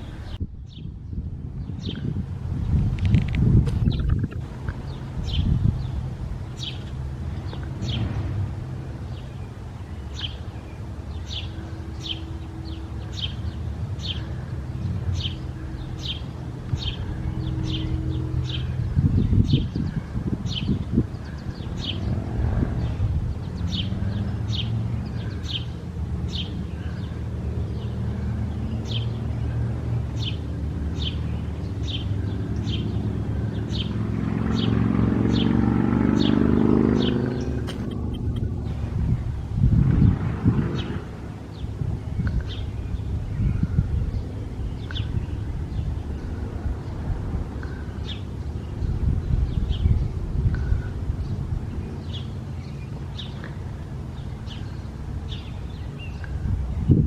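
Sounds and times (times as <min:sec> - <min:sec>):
steady low rumble: 0:00.0 - 0:33.8, 0:36.8 - 0:57.0
low engine hum: 0:00.0 - 0:57.0
vehicle rushing past: 0:01.4 - 0:57.0
bird chirping: 0:08.9 - 0:35.6, 0:36.2 - 0:39.4.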